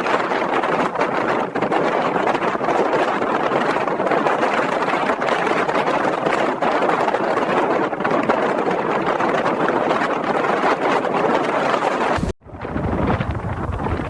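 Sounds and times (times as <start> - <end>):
blizzard wind rushing: 11.4 - 14.0.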